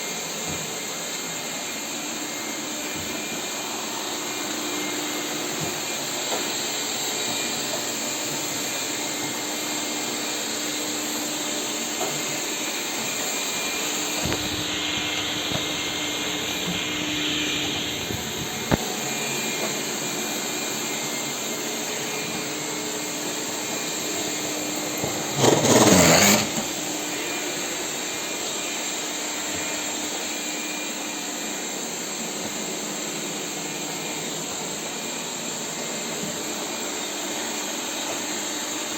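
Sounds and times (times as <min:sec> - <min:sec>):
robotic vacuum cleaner running: 0:00.0 - 0:38.9.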